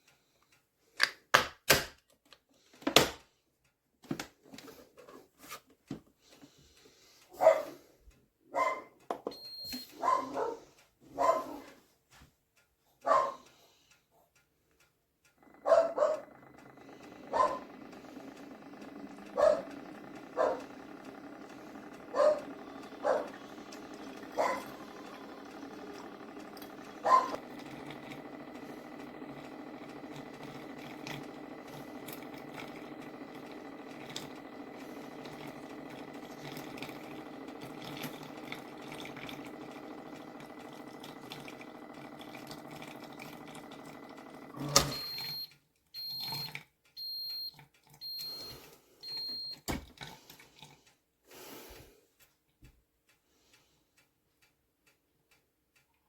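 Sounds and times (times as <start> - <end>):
dog barking: 7.3 - 7.8, 8.5 - 9.0, 9.9 - 11.7, 13.0 - 13.4, 15.4 - 16.3, 17.3 - 17.7, 19.3 - 19.7, 20.3 - 20.6, 22.1 - 23.4, 24.3 - 24.8, 27.0 - 27.4
coffee maker humming: 9.1 - 10.7, 15.3 - 50.8
short high-pitched beeps: 9.3 - 10.0, 44.9 - 49.6
coffee maker click: 15.4 - 45.4.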